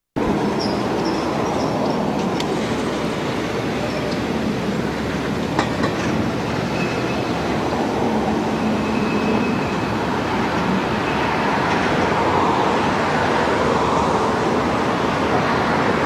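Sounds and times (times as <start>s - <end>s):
train wheels rumbling on rail: 0.2s - 16.0s.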